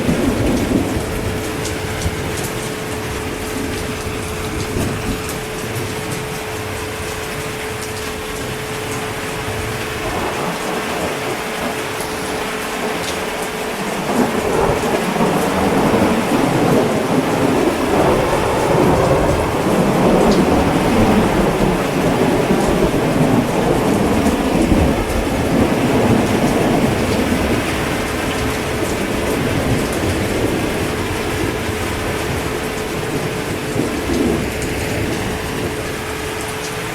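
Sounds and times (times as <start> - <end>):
heavy rain falling: 0.0 - 36.9
rolling thunder rumble: 0.0 - 36.9.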